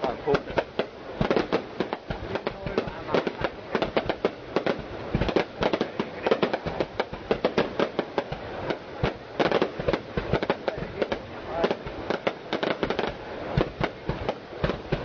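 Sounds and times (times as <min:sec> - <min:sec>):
firework shells bursting: 0:00.0 - 0:15.0.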